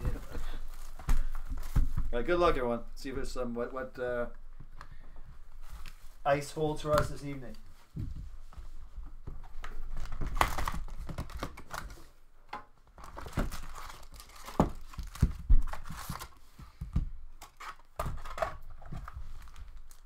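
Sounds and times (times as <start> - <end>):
wrapper crackling and tearing: 9.8 - 12.1, 13.0 - 16.4, 19.3 - 20.0.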